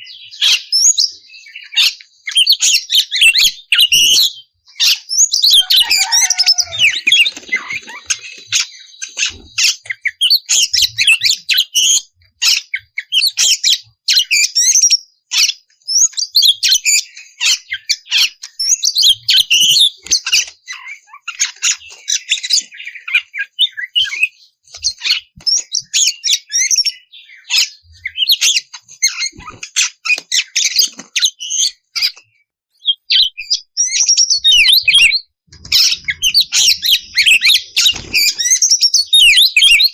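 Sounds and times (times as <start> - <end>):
magpie-robin singing chirps and whistles: 0.0 - 39.9.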